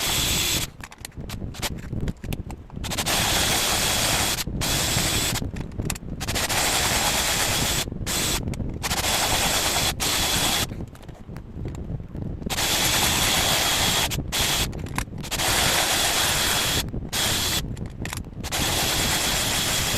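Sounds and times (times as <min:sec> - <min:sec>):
electric tool hissing and whining: 0:00.0 - 0:00.7, 0:02.8 - 0:05.4, 0:06.2 - 0:10.7, 0:12.5 - 0:17.7, 0:18.4 - 0:19.9.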